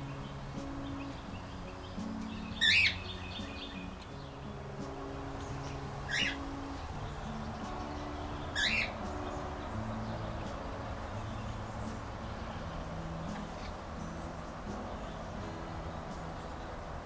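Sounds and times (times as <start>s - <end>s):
harsh bird squawks: 2.5s - 4.0s, 6.1s - 6.6s, 8.5s - 9.1s.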